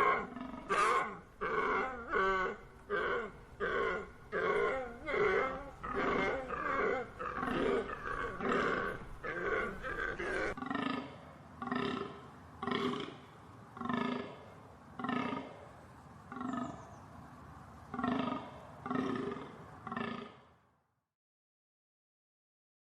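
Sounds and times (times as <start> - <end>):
deer calling: 0.0 - 10.9.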